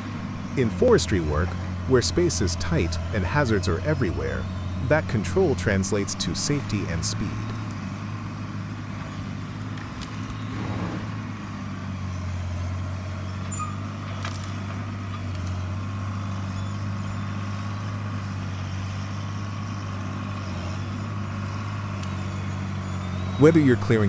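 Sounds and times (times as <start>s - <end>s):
loader engine humming: 0.0s - 24.0s.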